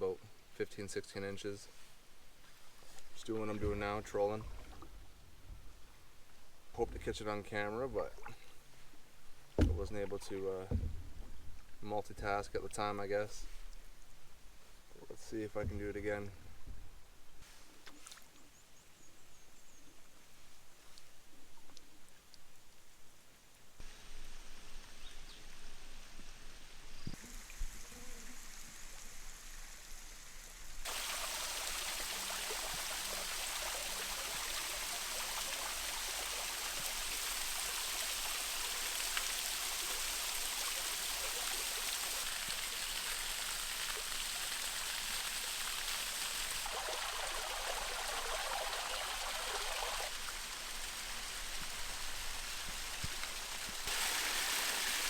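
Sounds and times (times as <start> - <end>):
soft knocks: 9.5 - 11.5
water-like rushing noise: 28.6 - 55.0.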